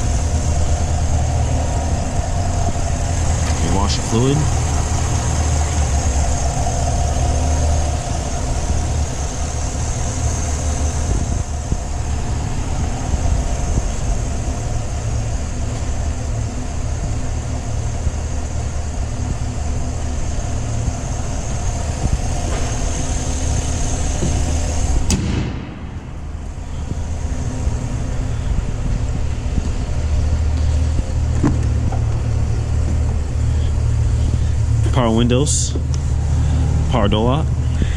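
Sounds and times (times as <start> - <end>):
engine idling: 0.0 - 37.9.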